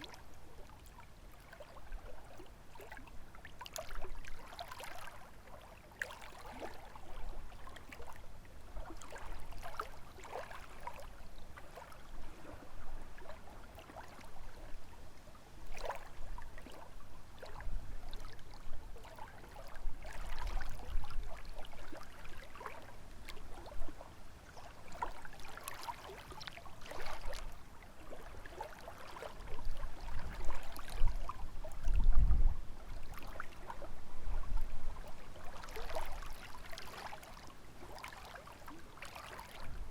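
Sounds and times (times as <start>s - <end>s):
waves lapping on shore: 0.0s - 8.2s, 8.8s - 32.0s, 32.7s - 39.9s
wind rumbling on microphone: 29.4s - 36.3s.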